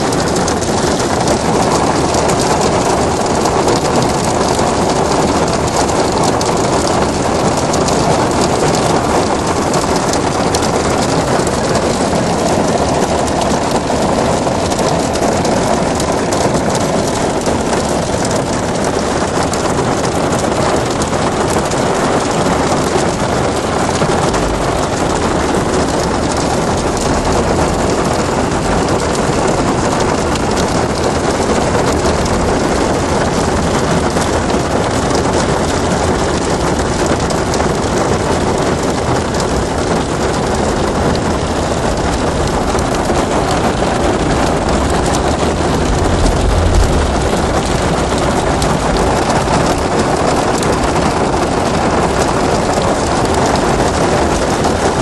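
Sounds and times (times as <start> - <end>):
hail and rain pelting down: 0.0 - 55.0
low rumble: 23.0 - 34.9, 40.0 - 51.6.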